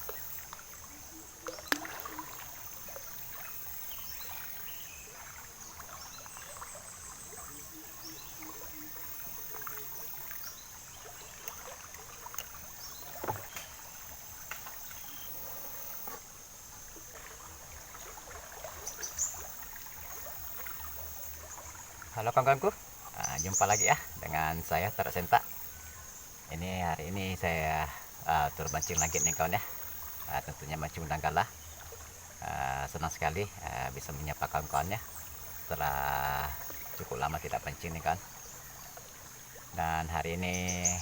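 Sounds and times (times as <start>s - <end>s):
insect drone: 0.0s - 41.0s
small water sounds: 0.0s - 41.0s
light knocks: 12.3s - 13.8s.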